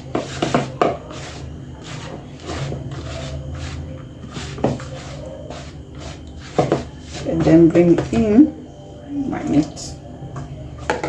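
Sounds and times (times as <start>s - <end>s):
spoon scraping dry flour in bowl: 0.0s - 8.5s
steady low hum: 0.0s - 11.0s.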